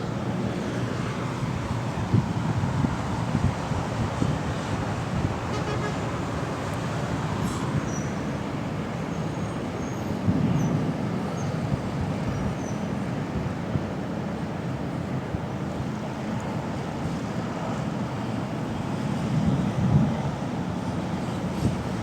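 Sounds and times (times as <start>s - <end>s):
city traffic noise: 0.0s - 22.0s
wind buffeting microphone: 0.9s - 8.9s, 19.1s - 22.0s.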